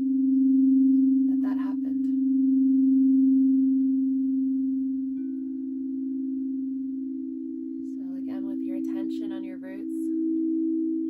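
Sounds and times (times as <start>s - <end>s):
higher singing bowl struck: 0.0s - 1.3s, 2.0s - 9.0s
singing bowl low tone: 0.0s - 11.0s.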